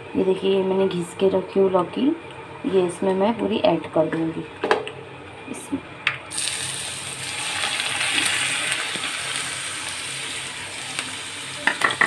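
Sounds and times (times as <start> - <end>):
gourd sizzling in ghee: 6.3 - 12.0.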